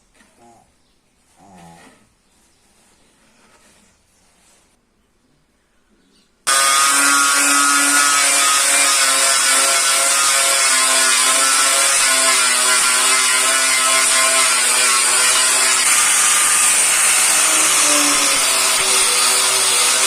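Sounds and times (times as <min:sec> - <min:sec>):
power tool grinding metal: 0:06.5 - 0:20.0.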